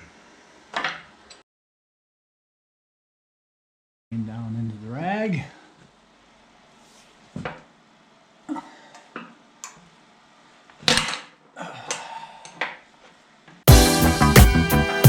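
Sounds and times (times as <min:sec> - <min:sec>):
music: 0:13.7 - 0:15.0.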